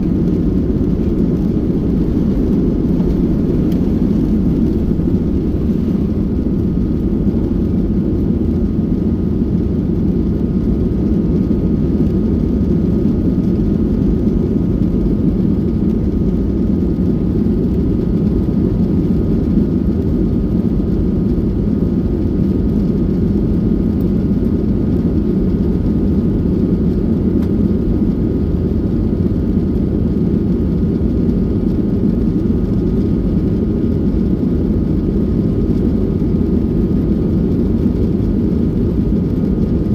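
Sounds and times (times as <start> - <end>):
airplane cabin engine rush: 0.0 - 39.9.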